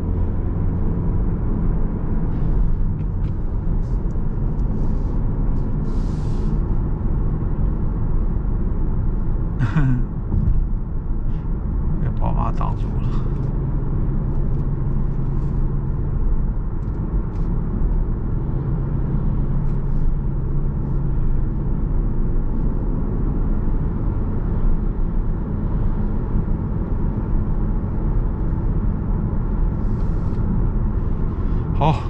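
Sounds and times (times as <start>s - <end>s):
car road and engine noise: 0.0s - 32.0s.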